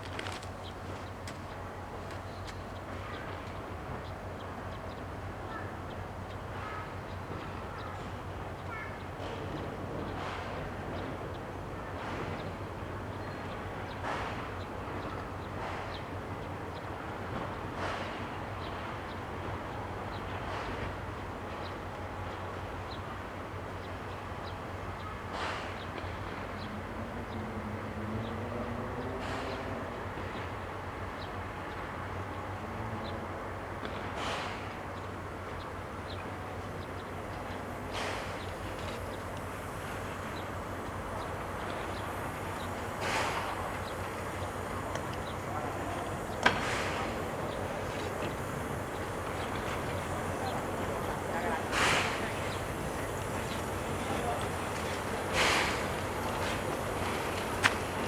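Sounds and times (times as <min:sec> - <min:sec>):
low locomotive drone: 0:00.0 - 0:58.0
low engine hum: 0:35.2 - 0:58.0
steam locomotive puffs hissing: 0:36.8 - 0:58.0
short hiss: 0:55.0 - 0:56.7.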